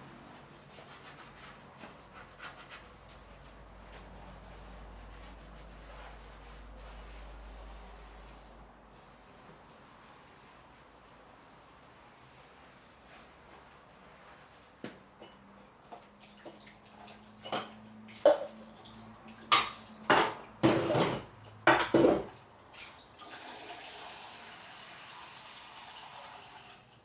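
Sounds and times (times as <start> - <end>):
dishes and cutlery clattering: 17.4 - 18.5, 19.4 - 22.4.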